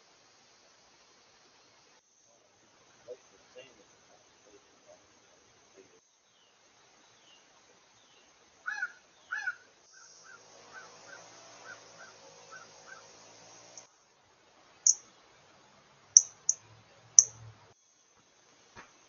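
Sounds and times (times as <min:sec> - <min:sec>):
harsh caw-like bird calls: 0:08.6 - 0:13.1.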